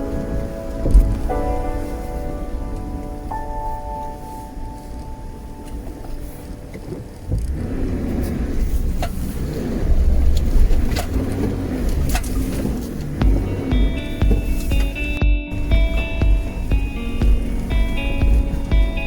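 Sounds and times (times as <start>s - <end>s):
vehicle driving rumble: 6.4s - 19.0s.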